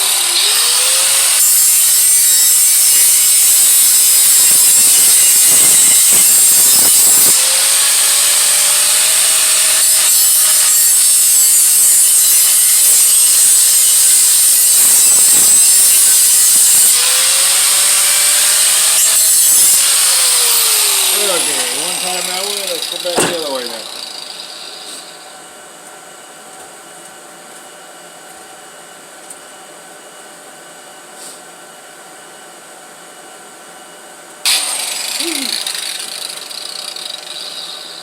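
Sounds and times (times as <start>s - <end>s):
metal pipe rasping grind: 1.2s - 25.1s.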